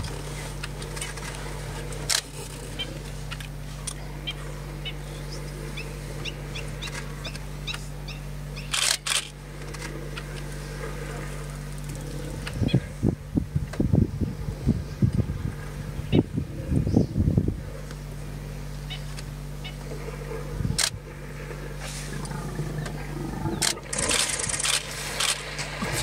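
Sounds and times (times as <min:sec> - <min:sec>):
steady low hum: 0:00.0 - 0:26.0
birds chirping: 0:02.6 - 0:09.0, 0:14.2 - 0:26.0
loud burst of noise: 0:23.6 - 0:26.0.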